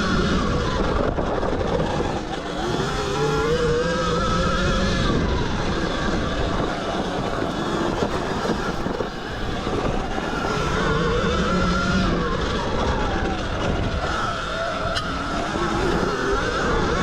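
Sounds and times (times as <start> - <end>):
electric motor whine: 0.0 - 17.0
wind and riding rumble: 0.0 - 17.0.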